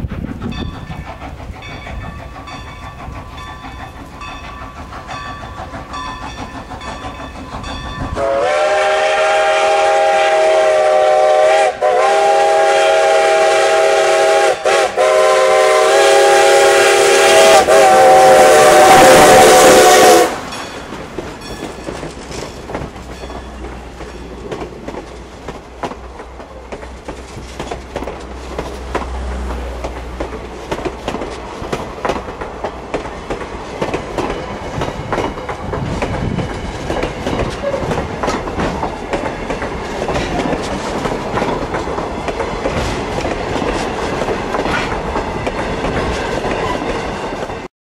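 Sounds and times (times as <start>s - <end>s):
low train rumble: 0.0s - 47.7s
train wheels clacking over rail joints: 0.0s - 47.7s
steam locomotive chime whistle: 1.6s - 22.1s.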